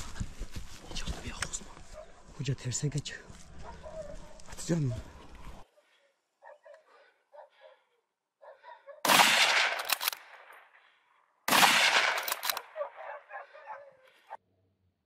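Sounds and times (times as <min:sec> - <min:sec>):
gunshots echoing: 0:09.0 - 0:13.2.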